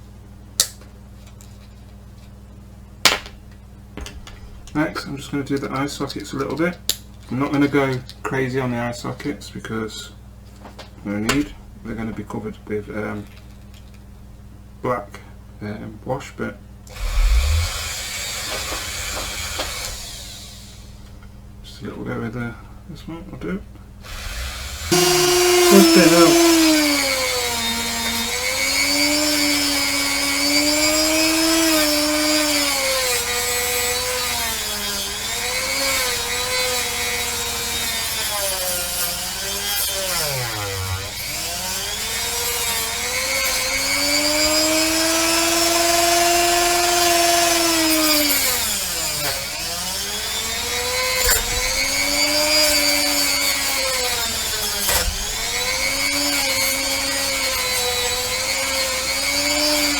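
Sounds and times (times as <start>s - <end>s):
rotary tool grinding metal: 24.1s - 59.9s.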